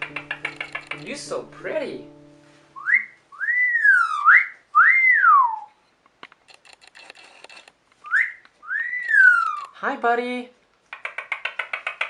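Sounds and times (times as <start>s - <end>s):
faint clicks: 0.0s - 1.1s, 6.0s - 9.8s, 10.7s - 12.0s
parrot wolf whistling: 2.8s - 5.7s, 8.0s - 9.7s.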